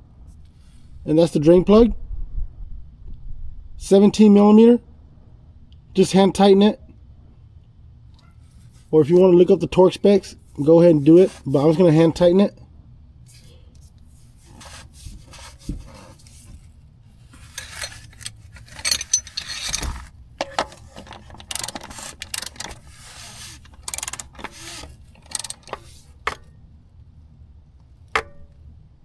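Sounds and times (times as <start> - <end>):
metal tool clicks and scrapes: 17.3 - 26.5
socket ratchet clicking: 17.6 - 26.5.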